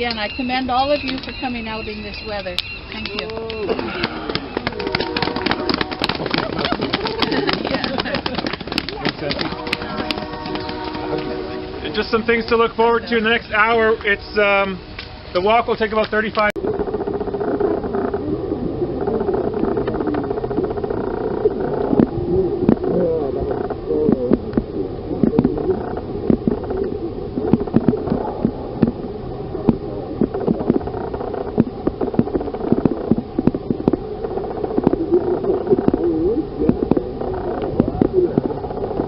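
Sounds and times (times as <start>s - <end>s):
murmur of many voices: 0.0s - 14.9s.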